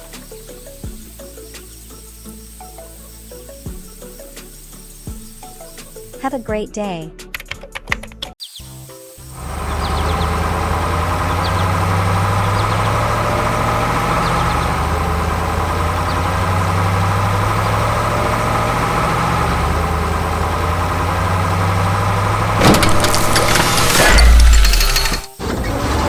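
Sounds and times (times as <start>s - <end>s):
heavy machine engine humming: 9.3s - 26.0s
noisy clatter: 20.5s - 26.0s.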